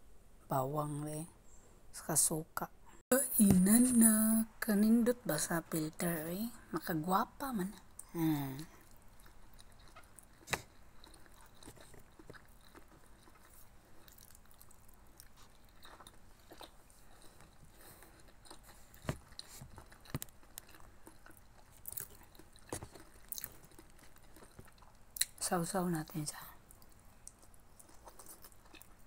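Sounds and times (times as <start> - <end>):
person chewing food: 7.8 - 25.4, 26.6 - 29.0.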